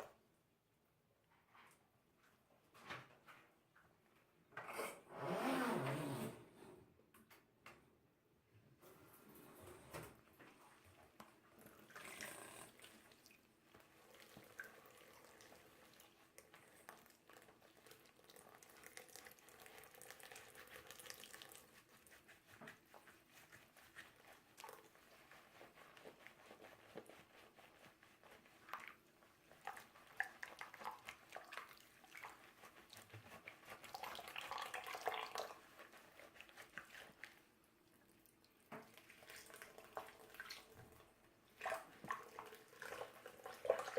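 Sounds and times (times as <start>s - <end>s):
water trickling and dripping: 11.6s - 21.7s.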